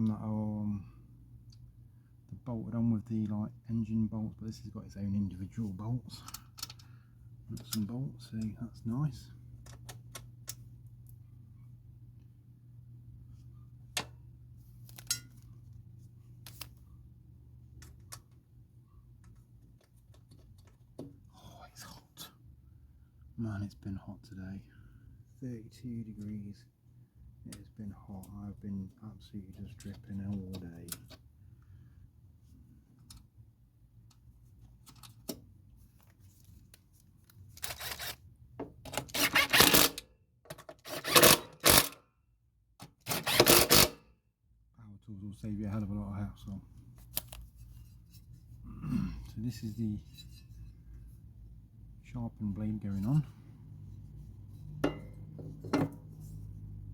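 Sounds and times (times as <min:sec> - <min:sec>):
steady low hum: 0:00.0 - 0:38.6, 0:44.5 - 0:56.9
impact driver bursts: 0:40.9 - 0:42.0, 0:43.1 - 0:44.0.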